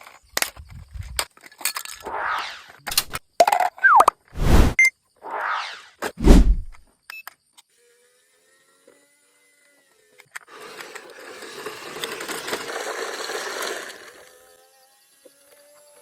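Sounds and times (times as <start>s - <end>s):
toy motor whirring and grinding: 7.7s - 16.0s.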